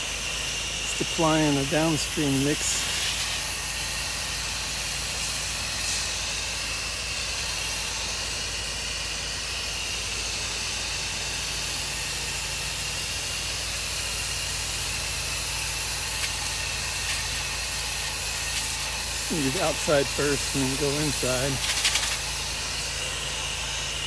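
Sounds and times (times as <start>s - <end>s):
pressure washer spray hissing: 0.0s - 8.4s, 10.8s - 24.0s
machine humming: 0.7s - 3.6s, 19.2s - 21.8s.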